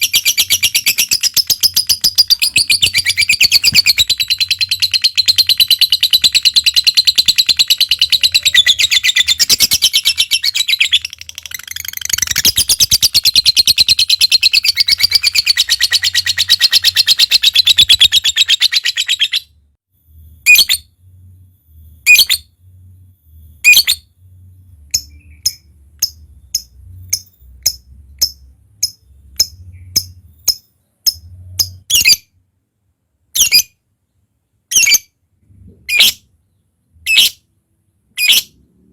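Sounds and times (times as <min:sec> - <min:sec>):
quick bird chirps: 0:00.0 - 0:19.4
sharp bird calls: 0:00.0 - 0:19.5.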